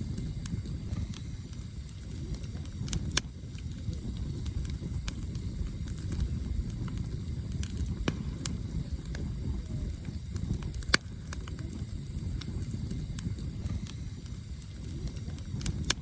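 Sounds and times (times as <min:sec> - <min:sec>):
campfire low rumble: 0:00.0 - 0:16.0
firewood crackles and pops: 0:00.0 - 0:16.0.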